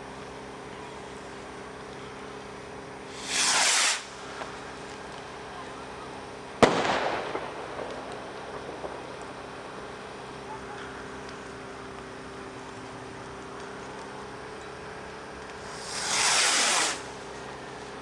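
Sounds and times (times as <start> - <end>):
firework rocket whooshing: 3.0 - 5.3, 6.6 - 10.2, 15.6 - 17.3
firework bang echoing: 3.1 - 4.5, 6.6 - 11.7, 15.6 - 17.1.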